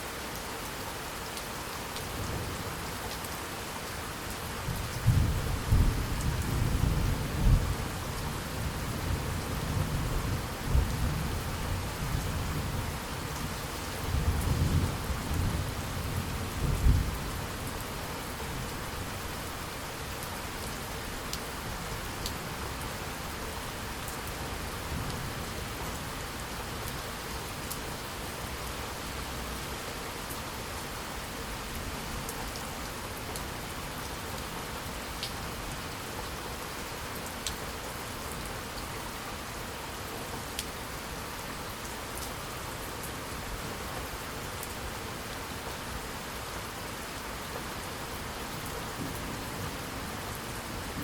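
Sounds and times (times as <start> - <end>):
rain falling on a surface: 0.0 - 51.0.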